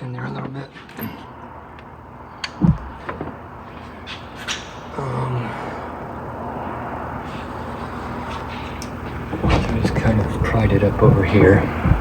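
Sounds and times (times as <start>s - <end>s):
loud dull thump: 2.6s - 3.3s, 11.7s - 12.0s.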